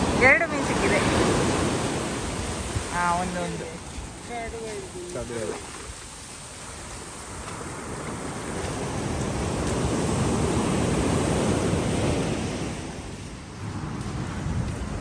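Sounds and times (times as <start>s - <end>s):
wave washing onto shore: 0.0s - 15.0s.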